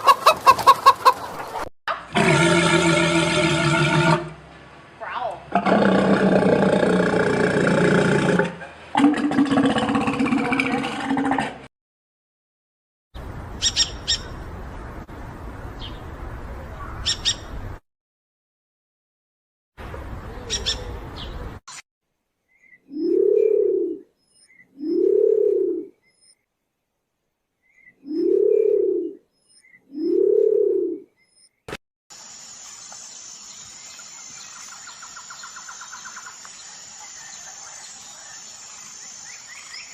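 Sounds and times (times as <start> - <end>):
sharp high bird calls: 13.6 - 14.3, 16.9 - 17.5, 20.4 - 21.4
background noise: 19.8 - 39.9.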